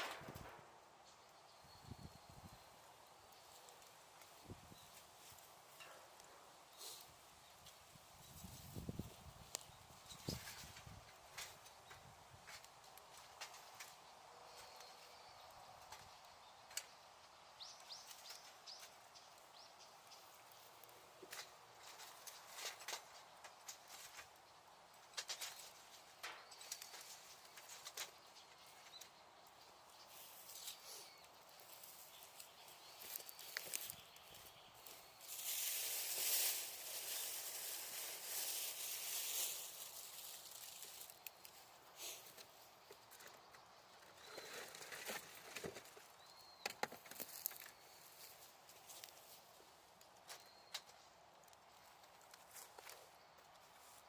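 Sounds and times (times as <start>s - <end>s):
fire crackles: 2.8s - 8.1s, 9.1s - 16.1s, 17.7s - 43.3s
bird chirping: 23.2s - 48.4s, 50.3s - 51.0s
wood fire hissing: 34.8s - 42.5s.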